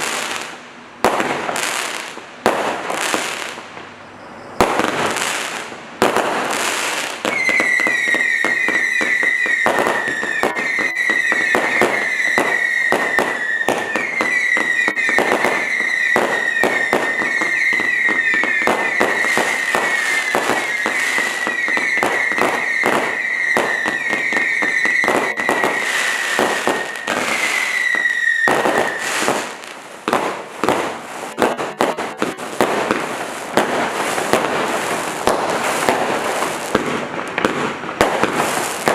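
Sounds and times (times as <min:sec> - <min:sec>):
firework launches and crackling: 0:00.0 - 0:03.9, 0:04.6 - 0:38.9
firework bangs: 0:00.0 - 0:38.9
high screaming firework whistle: 0:04.0 - 0:05.6, 0:07.0 - 0:29.7.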